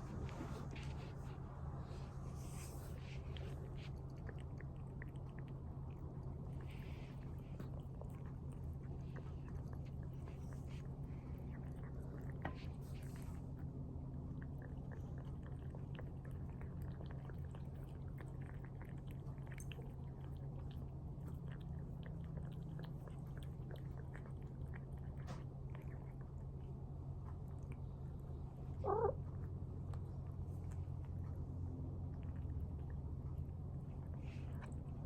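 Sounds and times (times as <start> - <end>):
cats chewing and licking: 0.0 - 35.0
cat meowing: 28.8 - 29.2.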